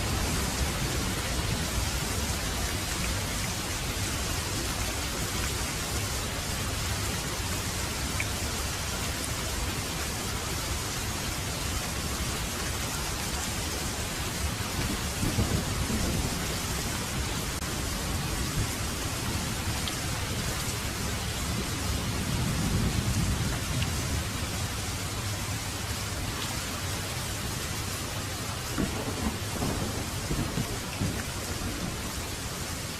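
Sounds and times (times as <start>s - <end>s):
heavy rain falling: 0.0s - 32.9s
low rumbles of thunder: 14.4s - 25.3s, 28.7s - 32.5s.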